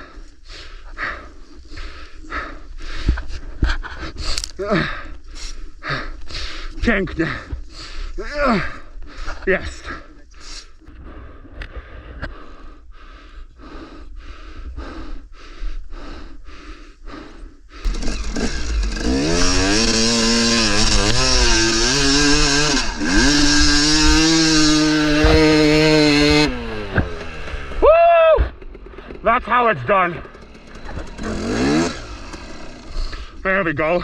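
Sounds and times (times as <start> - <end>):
dirt bike engine revving: 17.8 - 33.4.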